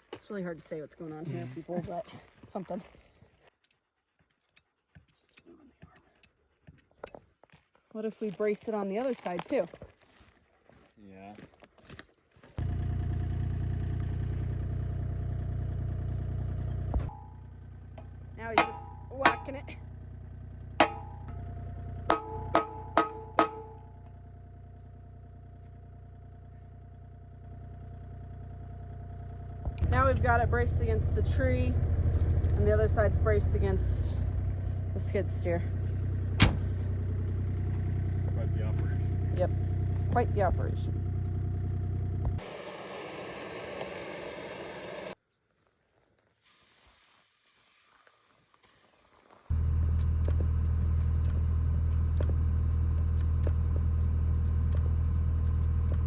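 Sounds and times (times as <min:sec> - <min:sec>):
engine droning: 0:12.6 - 0:45.2, 0:49.5 - 0:56.0
hammer striking steel: 0:18.6 - 0:19.6, 0:20.8 - 0:21.3, 0:22.1 - 0:24.0
steady hissing noise: 0:42.4 - 0:45.2.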